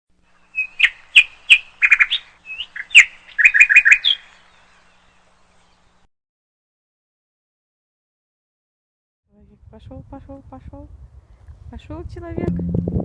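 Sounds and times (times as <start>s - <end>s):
songbird chirping and trilling: 0.3s - 6.1s.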